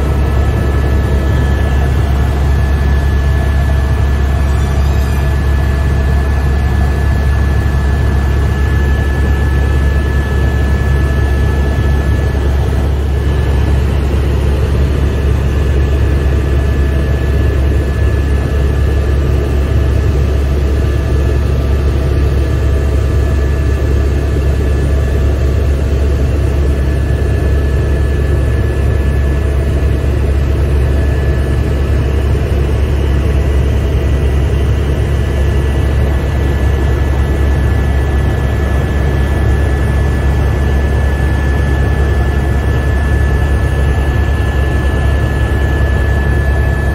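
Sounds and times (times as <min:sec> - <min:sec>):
high whine: 0:00.0 - 0:18.2
helicopter rotor drone: 0:00.0 - 0:46.9.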